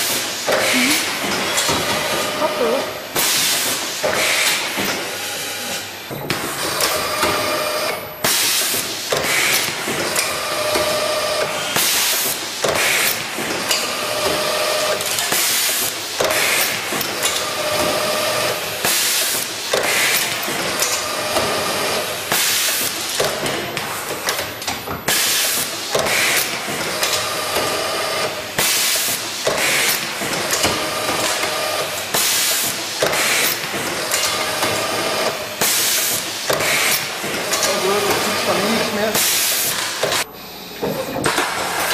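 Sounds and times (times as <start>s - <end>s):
compressed air blasts: 3.1s - 4.8s, 8.2s - 9.8s, 11.6s - 13.2s, 18.8s - 20.3s, 22.3s - 23.3s, 25.1s - 27.2s, 28.6s - 30.1s, 31.2s - 34.7s, 35.6s - 37.3s, 39.1s - 40.2s.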